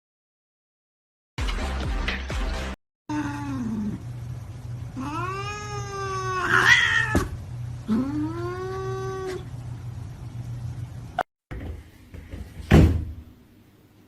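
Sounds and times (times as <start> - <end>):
steady low hum: 3.1 - 11.2
cat yowling: 5.0 - 7.3, 7.9 - 9.5.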